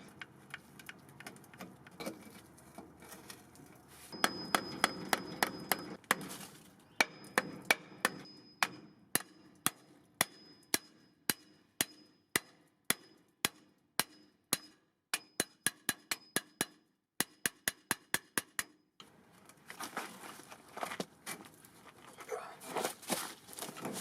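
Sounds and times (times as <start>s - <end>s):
scraping rustling noise: 2.1s - 4.2s, 6.2s - 6.8s, 19.5s - 24.0s
hammer striking metal: 4.2s - 6.3s, 7.0s - 18.7s.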